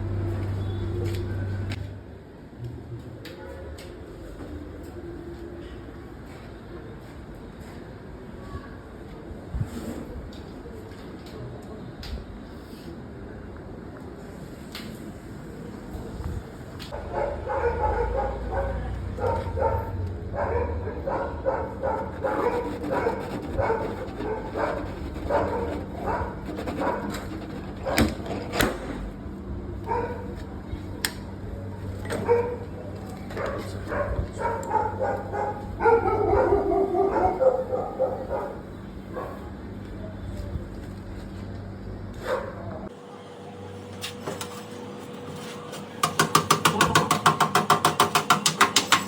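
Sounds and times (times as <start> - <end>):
dog barking and whimpering: 17.0 - 27.0, 33.4 - 38.6.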